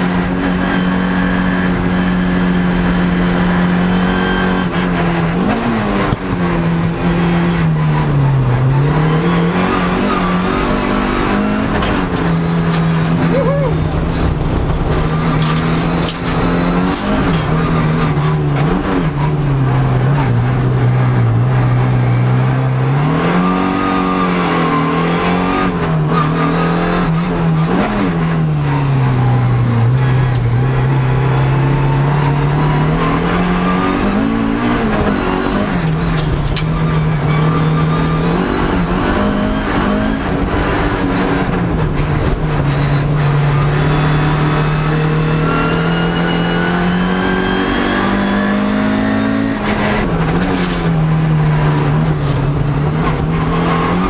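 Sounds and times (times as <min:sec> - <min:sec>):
race car engine: 0:00.0 - 0:54.0
car knocks and rattles: 0:11.6 - 0:19.9, 0:34.8 - 0:38.8, 0:49.7 - 0:54.0.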